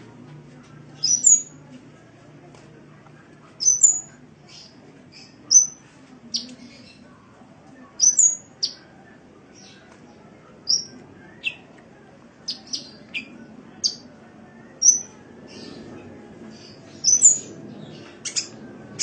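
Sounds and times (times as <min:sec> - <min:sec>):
bird chirping: 0:01.0 - 0:01.6, 0:03.6 - 0:07.1, 0:08.0 - 0:08.8, 0:10.6 - 0:11.7, 0:12.5 - 0:14.0, 0:14.8 - 0:15.9, 0:16.5 - 0:19.0.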